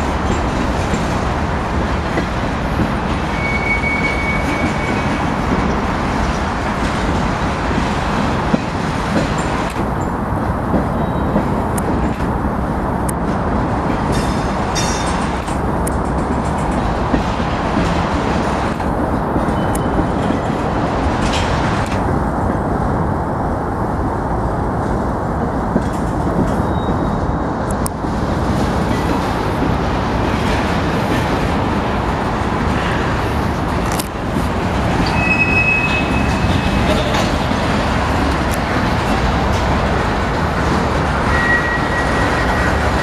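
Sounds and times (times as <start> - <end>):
wheels clicking on rail joints: 0.0 - 22.7, 24.9 - 43.0
freight train rumbling past: 0.0 - 43.0.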